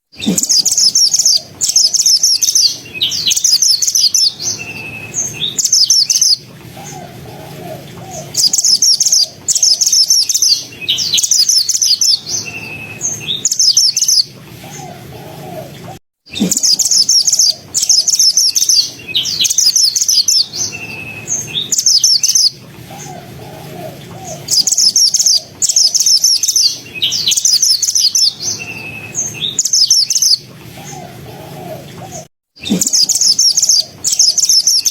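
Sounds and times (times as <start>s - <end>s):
bird chattering song: 0.1s - 34.9s.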